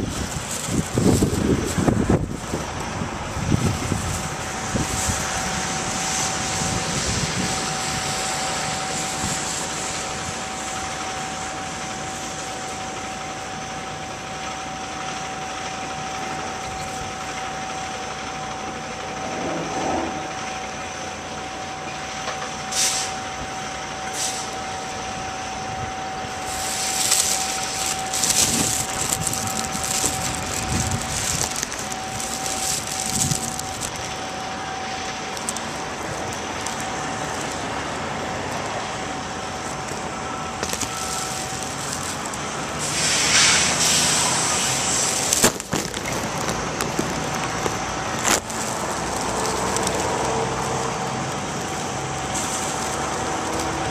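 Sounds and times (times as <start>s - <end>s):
delivery truck running: 0.0s - 53.9s
steady whining tone: 0.0s - 53.9s
short bursts of hiss: 22.7s - 23.2s, 42.8s - 45.3s.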